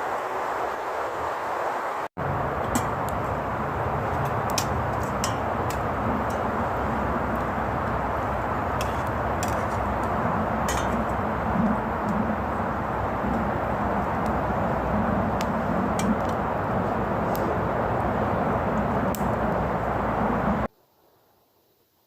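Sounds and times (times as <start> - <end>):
low rumbling noise: 0.0 - 20.7
campfire crackling: 0.0 - 21.2
sharp fire pops: 2.7 - 19.6.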